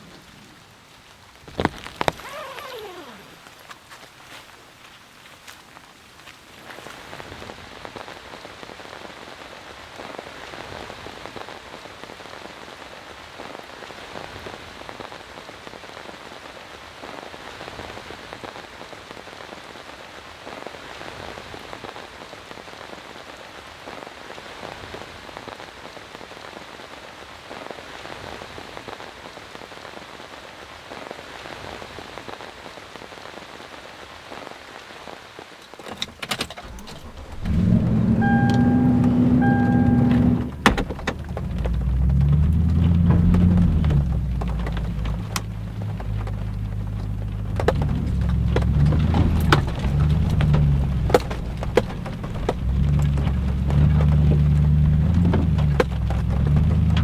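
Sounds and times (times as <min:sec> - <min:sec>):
rain spattering on surface: 0:00.0 - 0:57.0.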